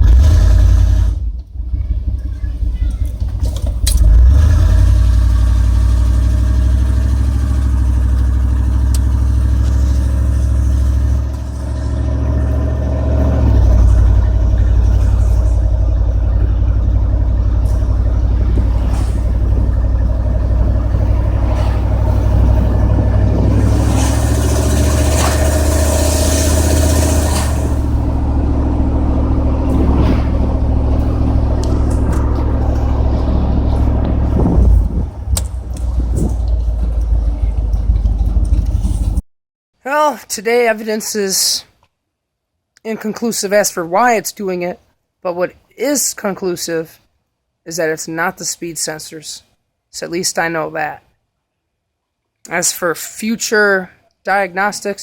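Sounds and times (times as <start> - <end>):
truck engine rumbling: 0.0 - 39.2
rushing noise: 9.8 - 38.2.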